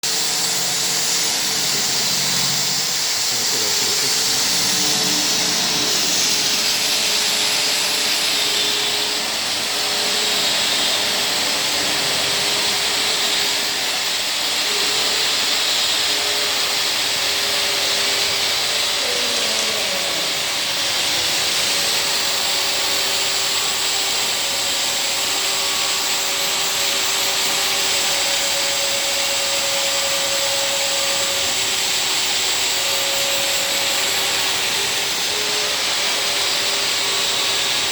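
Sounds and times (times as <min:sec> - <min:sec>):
washing machine hiss: 0:00.0 - 0:09.4.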